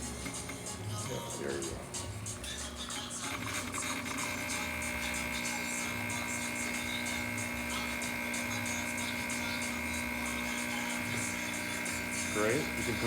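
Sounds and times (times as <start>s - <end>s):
espresso machine pump buzzing: 0.0s - 13.0s.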